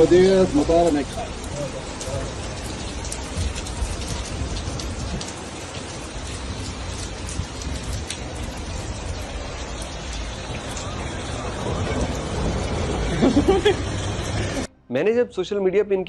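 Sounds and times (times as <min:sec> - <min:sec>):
heavy rain on hard surfaces: 0:00.0 - 0:14.7
low rumble: 0:07.3 - 0:14.7.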